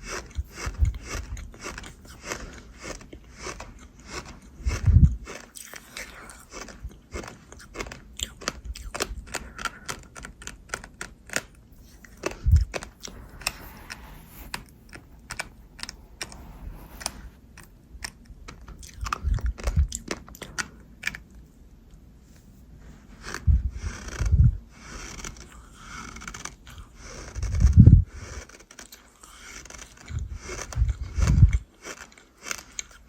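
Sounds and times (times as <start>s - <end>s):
crunchy chewing: 0.0s - 21.5s, 23.1s - 33.0s
dull low thumps: 11.8s - 18.0s.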